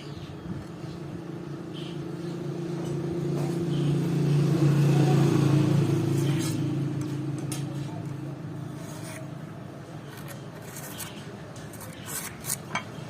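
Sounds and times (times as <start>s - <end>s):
vehicle engine passing by: 2.0s - 9.5s.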